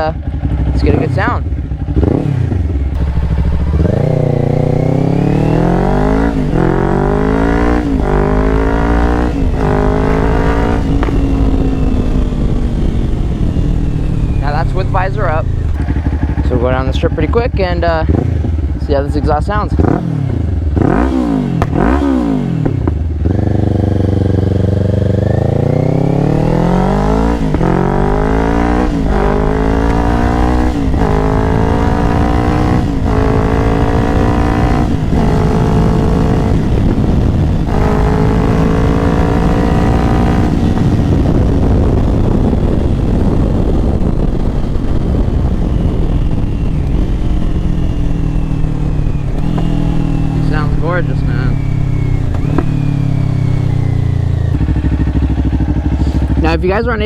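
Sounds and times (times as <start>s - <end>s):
motorcycle engine accelerating: 0.0s - 57.0s
wind noise: 0.0s - 57.0s.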